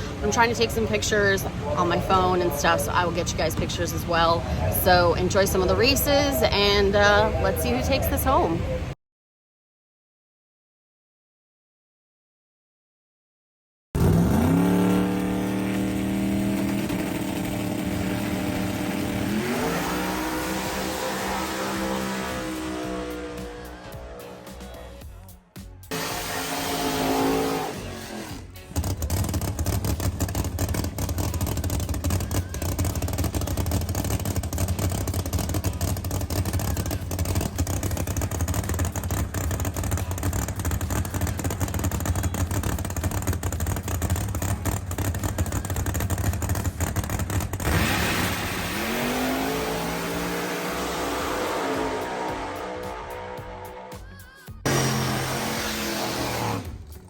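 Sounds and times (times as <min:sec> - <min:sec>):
drag racing car engine revving: 0:14.0 - 0:25.0, 0:25.9 - 0:57.0.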